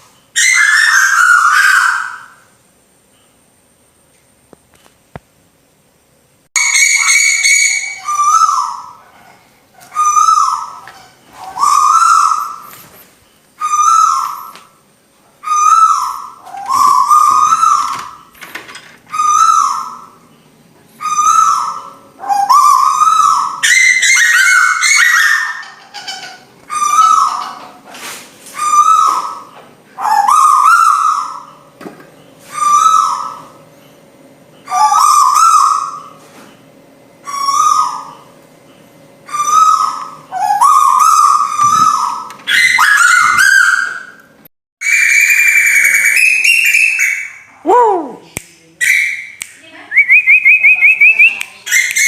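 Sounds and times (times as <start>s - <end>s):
owl whistle-like calls: 0.4s - 2.6s, 6.6s - 12.8s, 13.6s - 14.8s, 15.4s - 18.3s, 19.1s - 20.2s, 21.0s - 25.8s, 28.6s - 31.6s, 32.4s - 33.6s, 34.7s - 36.2s, 37.2s - 38.3s, 39.3s - 44.2s, 44.8s - 48.2s, 50.0s - 52.0s.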